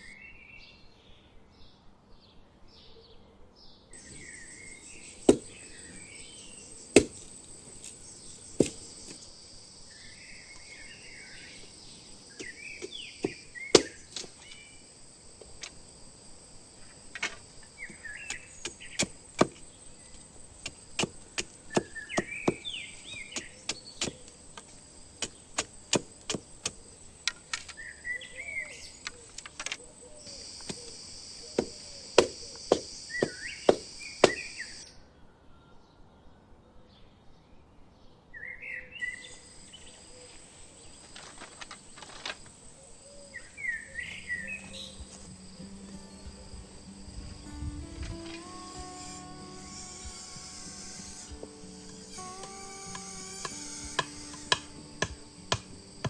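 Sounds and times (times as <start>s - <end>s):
birds chirping: 4.0s - 15.7s, 16.7s - 34.9s, 42.4s - 56.0s
high insect drone: 4.0s - 29.4s, 30.1s - 34.8s, 39.3s - 56.0s
tool chopping wood: 5.2s - 5.9s, 7.0s - 7.3s, 8.6s - 9.2s, 12.4s - 14.5s, 17.9s - 27.7s, 30.7s - 30.9s, 31.6s - 34.7s, 48.9s - 55.8s.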